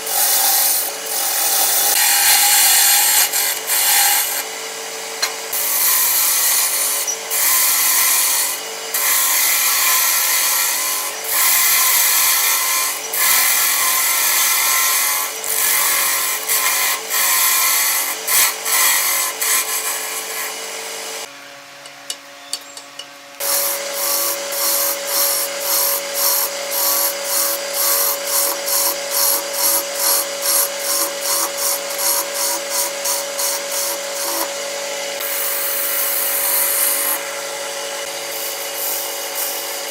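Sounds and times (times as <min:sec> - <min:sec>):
tool scraping wood on lathe: 0:00.0 - 0:04.5, 0:05.2 - 0:20.7, 0:23.4 - 0:37.4, 0:38.2 - 0:39.9
lathe whine: 0:00.0 - 0:21.3, 0:23.4 - 0:39.9.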